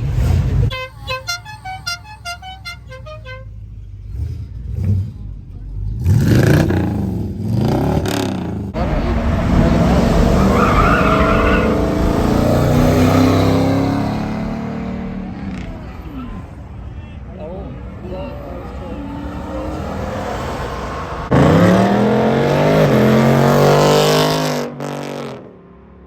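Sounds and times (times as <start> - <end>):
car engines revving: 0.0 - 26.0
car horn pulsing: 0.6 - 3.7.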